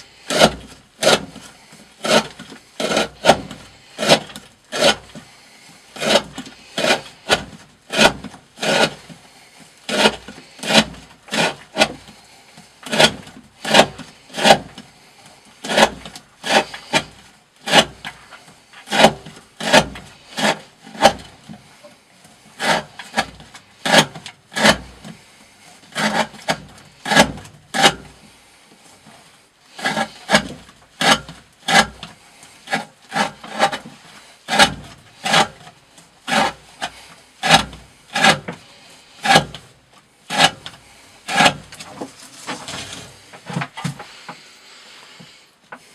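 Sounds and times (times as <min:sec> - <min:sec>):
knife slicing through rope: 0:00.2 - 0:05.3, 0:05.9 - 0:09.1, 0:09.9 - 0:12.2, 0:12.8 - 0:14.8, 0:15.6 - 0:18.2, 0:18.8 - 0:21.4, 0:22.6 - 0:25.2, 0:25.9 - 0:28.2, 0:29.7 - 0:35.7, 0:36.3 - 0:43.6.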